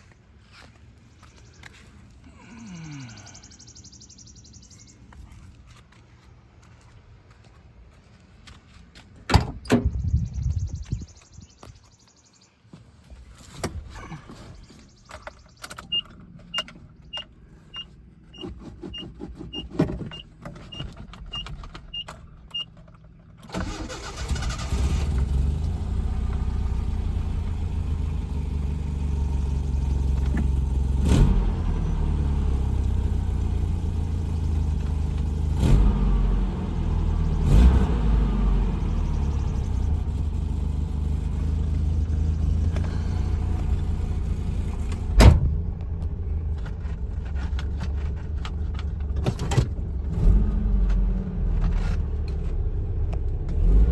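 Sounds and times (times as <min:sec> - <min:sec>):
car engine starting and running: 0:13.5 - 0:53.9
loud thump: 0:45.0 - 0:45.6.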